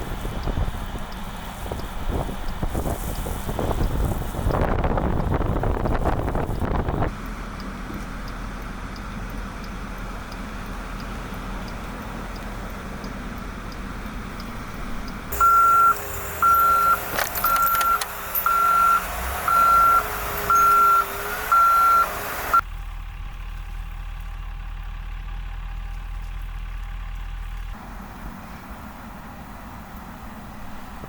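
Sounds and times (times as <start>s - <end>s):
reversing alarm beeping: 15.3s - 22.6s.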